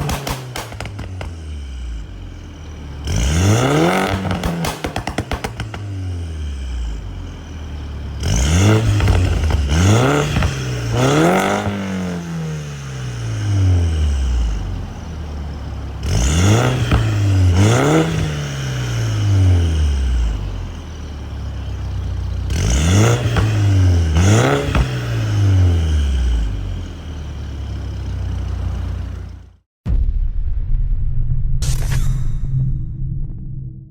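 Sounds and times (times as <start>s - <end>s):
exhaust crackles and pops: 0.0s - 7.2s, 8.2s - 12.3s, 14.4s - 25.4s
car engine throttle blips: 0.0s - 29.6s.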